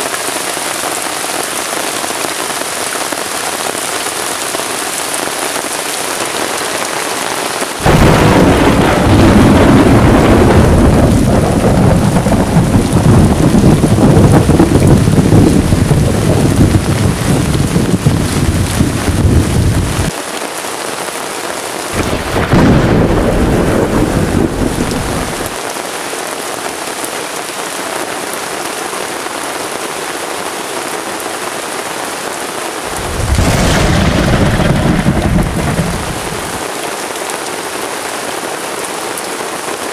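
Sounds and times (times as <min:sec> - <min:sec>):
heavy rain on a tarp: 0:00.0 - 0:39.9
thunder rumbling: 0:07.8 - 0:20.1, 0:21.9 - 0:25.6, 0:32.9 - 0:36.7.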